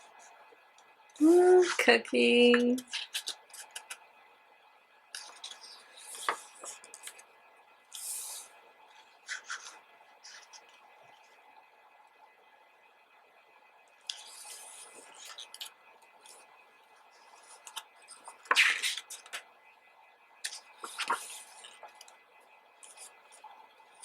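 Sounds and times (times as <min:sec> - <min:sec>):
photobook pages turning: 0:02.8 - 0:04.0, 0:05.2 - 0:07.2, 0:07.9 - 0:11.3, 0:14.0 - 0:16.4, 0:17.2 - 0:19.4, 0:20.4 - 0:22.1, 0:22.8 - 0:24.0.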